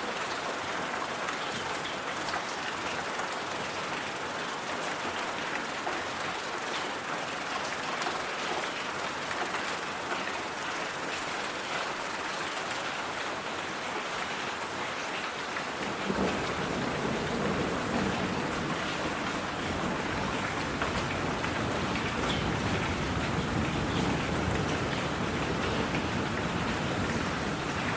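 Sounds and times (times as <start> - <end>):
steady rain: 0.0 - 27.9
raindrop ticks: 15.8 - 27.9.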